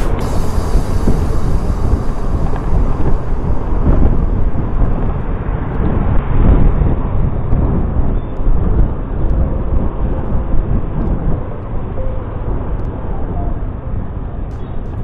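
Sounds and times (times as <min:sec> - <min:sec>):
motorcycle road noise: 0:00.0 - 0:08.1
wind buffeting microphone: 0:00.0 - 0:15.0.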